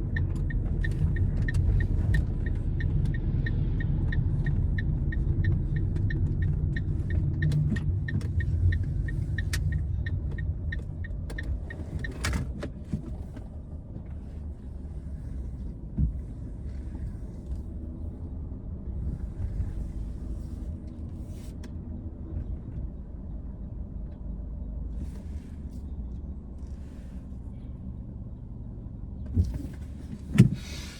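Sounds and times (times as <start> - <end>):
turn signal ticking: 0.0 - 13.5
car engine and road rumble: 0.0 - 30.9.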